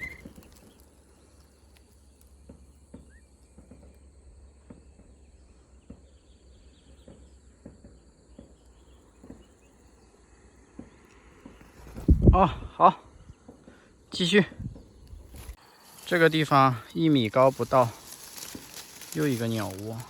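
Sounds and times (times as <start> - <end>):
high insect drone: 13.9 - 20.0.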